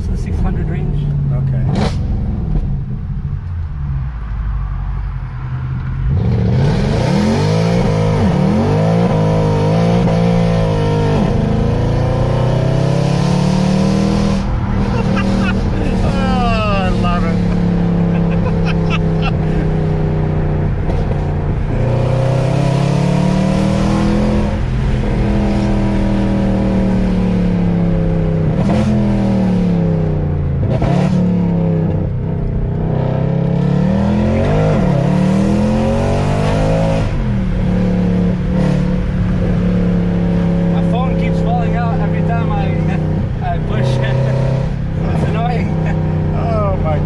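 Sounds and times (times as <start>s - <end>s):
car engine accelerating: 0.0s - 47.0s.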